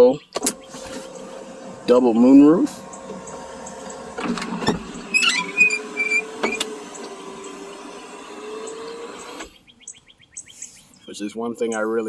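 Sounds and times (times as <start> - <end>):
moonroof motor humming: 0.4 - 9.6.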